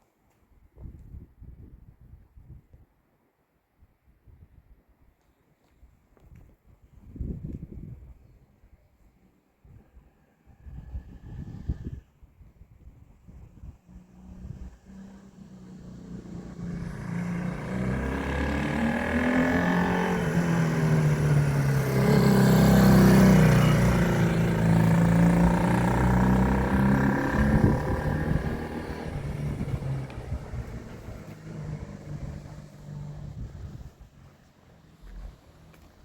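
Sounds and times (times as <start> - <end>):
motorcycle engine passing by: 13.8 - 33.9.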